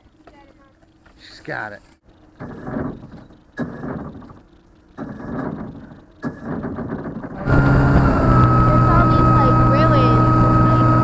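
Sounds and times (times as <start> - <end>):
outboard motor cranking: 2.2 - 11.0
outboard motor running with whine: 2.2 - 11.0.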